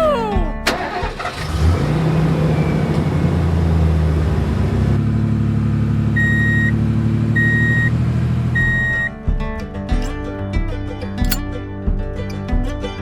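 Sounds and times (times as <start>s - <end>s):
truck engine running: 0.0s - 9.6s
reversing alarm beeps: 6.2s - 6.8s, 7.4s - 7.9s, 8.6s - 9.1s.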